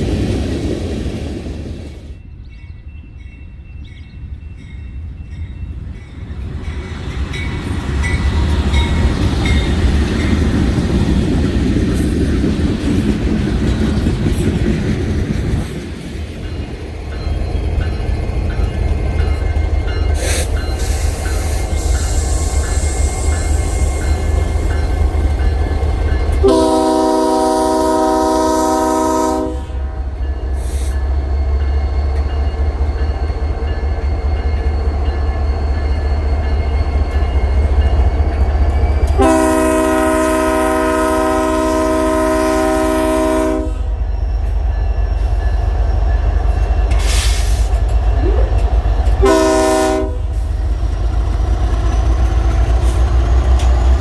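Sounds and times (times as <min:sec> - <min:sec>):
train rumble: 0:00.0 - 0:54.0
locomotive air horn: 0:26.4 - 0:30.1, 0:39.2 - 0:43.9, 0:49.2 - 0:50.4.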